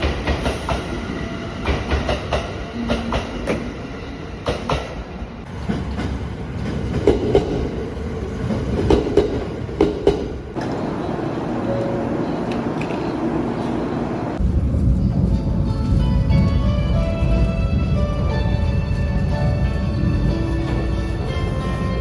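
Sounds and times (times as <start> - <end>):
train wheels knocking on rails: 0.0 - 1.0, 1.6 - 3.6, 5.6 - 7.8, 8.8 - 10.4
steady low train rumble: 0.0 - 22.0.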